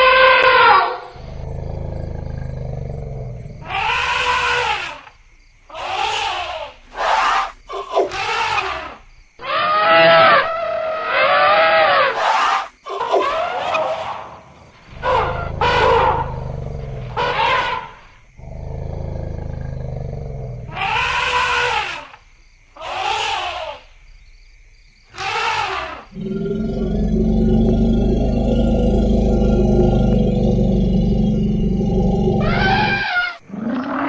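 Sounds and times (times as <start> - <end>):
elephants trumpeting: 14.9 - 18.6, 20.6 - 22.2, 25.2 - 33.5
low steady rumbling: 26.2 - 33.0.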